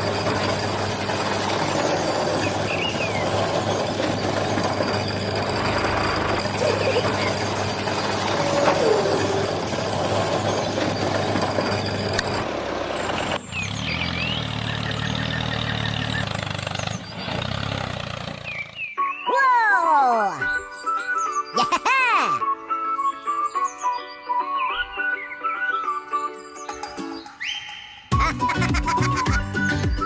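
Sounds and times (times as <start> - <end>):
short high squeaks: 0.0 - 12.5
vehicle engine running: 0.0 - 19.0.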